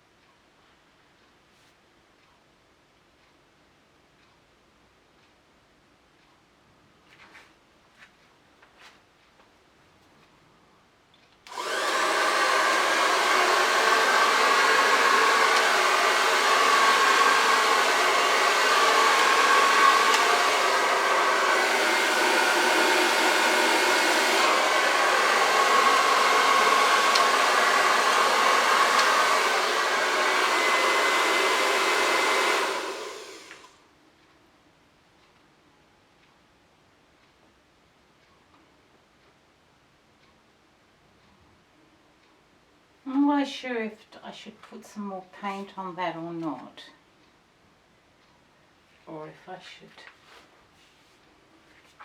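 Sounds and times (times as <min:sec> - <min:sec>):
hair dryer running: 0:11.5 - 0:33.8.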